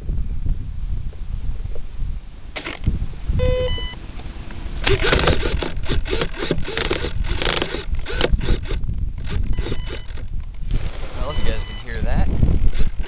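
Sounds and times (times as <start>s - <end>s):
servos buzzing and grinding: 2.6s - 13.0s
short electronic tone: 3.4s - 4.0s, 9.5s - 10.1s, 11.2s - 11.9s.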